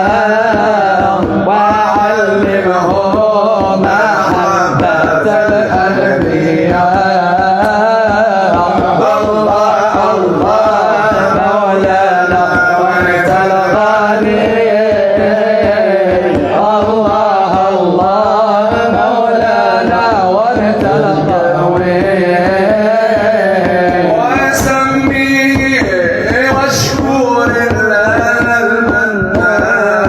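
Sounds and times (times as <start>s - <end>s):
hand drum beat: 0.0s - 30.0s.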